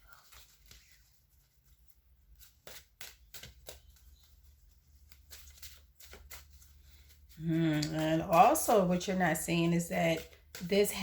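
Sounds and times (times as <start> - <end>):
cards tapping and flicking: 2.3 - 11.0.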